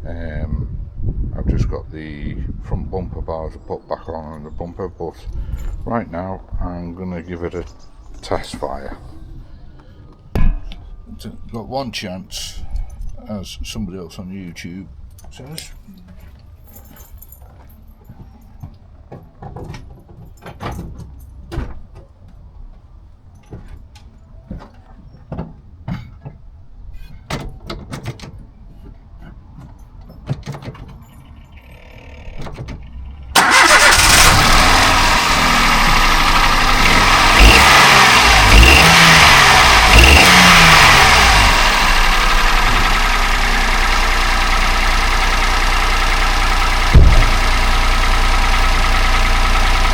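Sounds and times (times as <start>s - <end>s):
car engine starting and revving: 33.0s - 49.9s.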